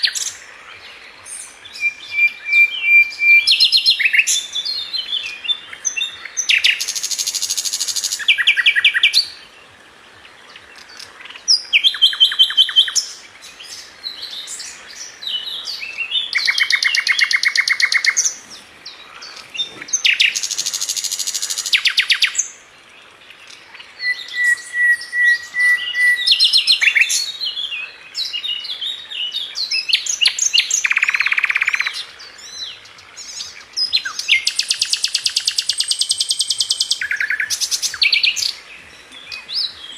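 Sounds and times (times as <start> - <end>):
bird chirps: 23.4 - 39.9.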